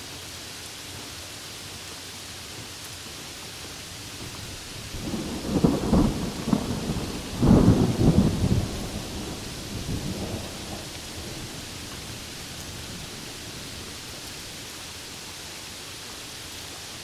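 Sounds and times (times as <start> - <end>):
steady rain hissing: 0.0 - 17.0
thunder rolling: 4.2 - 14.7.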